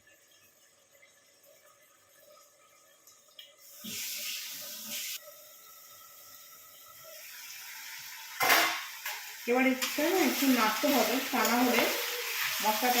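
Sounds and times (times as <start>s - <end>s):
chicken sizzling in oil: 3.6s - 13.0s.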